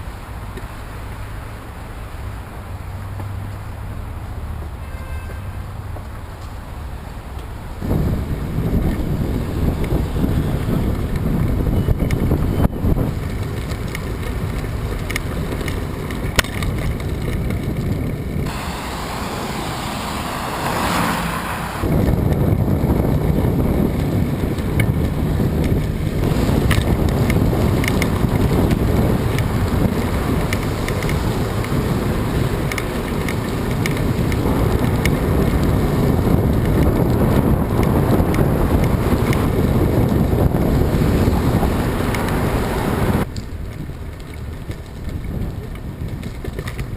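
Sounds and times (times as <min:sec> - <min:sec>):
wind buffeting microphone: 0:06.1 - 0:46.9
small clicks: 0:13.2 - 0:18.1
rushing hiss: 0:18.5 - 0:21.9.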